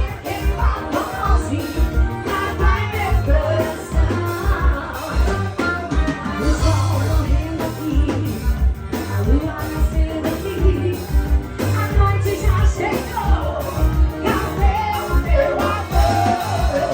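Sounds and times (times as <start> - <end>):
heavy low drum beat: 0.0 - 16.9
live band music: 0.0 - 16.9
person singing: 0.0 - 16.9.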